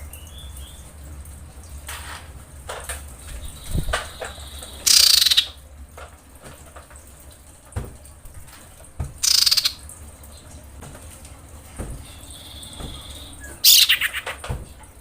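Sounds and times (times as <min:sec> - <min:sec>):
bird harsh rattling calls: 0:03.5 - 0:05.6, 0:09.2 - 0:09.8, 0:12.2 - 0:14.4.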